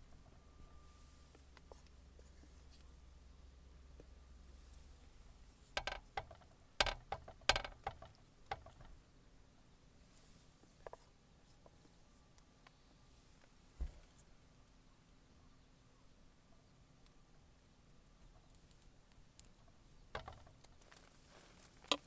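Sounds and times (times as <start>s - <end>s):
sharp clicks and knocks: 5.7s - 9.0s, 19.4s - 21.0s.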